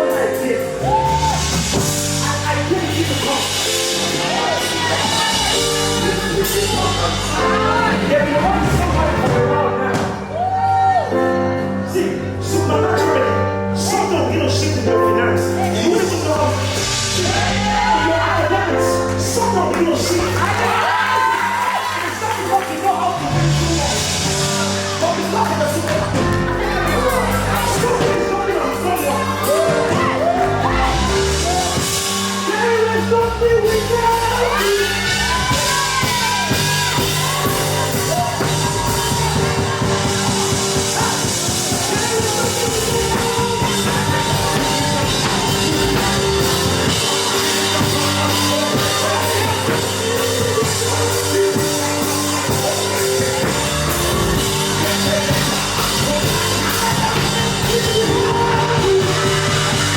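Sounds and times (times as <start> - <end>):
live worship band music: 0.0 - 59.9
voices singing: 3.4 - 9.6, 23.3 - 59.9.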